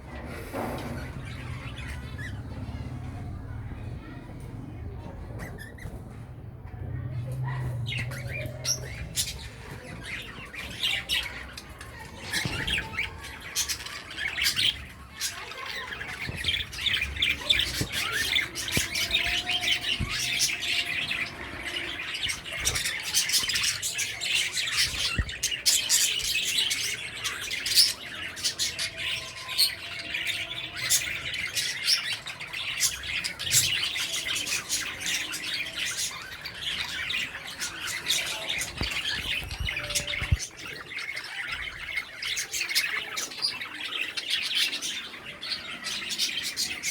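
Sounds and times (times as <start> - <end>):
birds chattering and chirping: 0.0 - 46.9.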